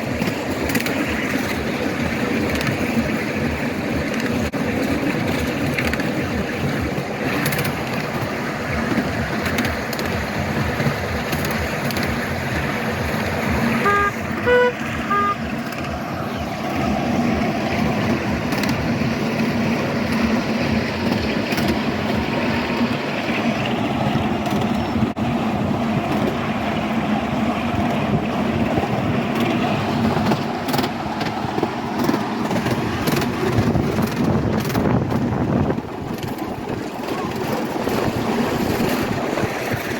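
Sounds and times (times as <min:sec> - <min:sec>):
miniature train running on track: 0:00.0 - 0:39.9
train horn toots: 0:13.6 - 0:16.3.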